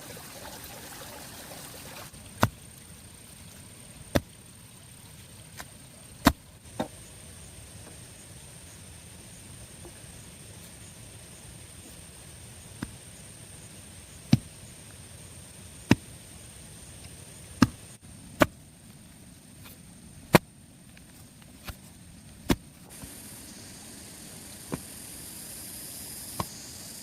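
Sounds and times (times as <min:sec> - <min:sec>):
sharp chopping strikes: 0:18.4 - 0:18.6, 0:24.7 - 0:24.9, 0:26.3 - 0:26.6.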